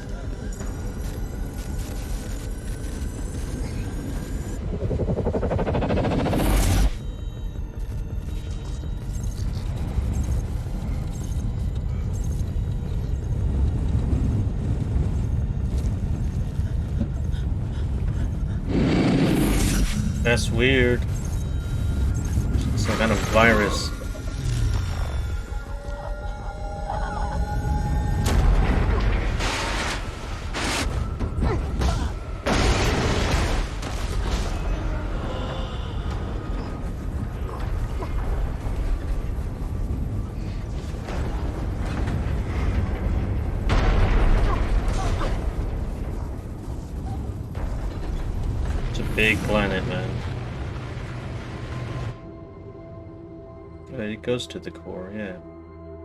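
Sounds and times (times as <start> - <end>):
deep steady rumble: 0.0 - 32.4
surges of rushing noise: 4.5 - 7.0.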